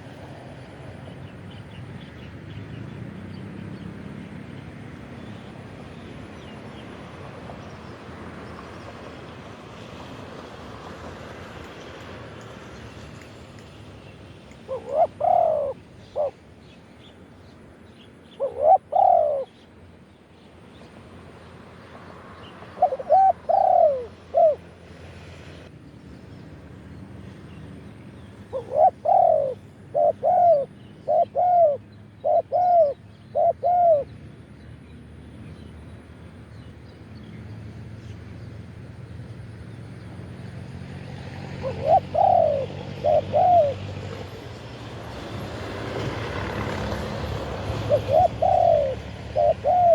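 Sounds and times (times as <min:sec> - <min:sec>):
dove cooing: 0:14.7 - 0:16.4, 0:18.4 - 0:19.6, 0:22.7 - 0:24.6, 0:28.5 - 0:34.1, 0:41.5 - 0:44.0, 0:47.5 - 0:49.9.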